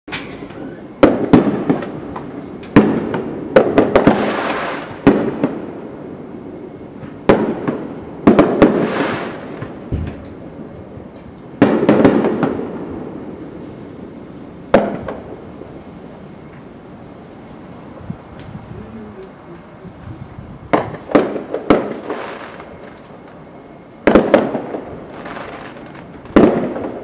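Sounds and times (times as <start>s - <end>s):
fireworks crackling hiss: 0.2s - 14.3s, 17.4s - 27.0s
fireworks bangs with rolling echo: 0.8s - 15.8s, 20.6s - 27.0s.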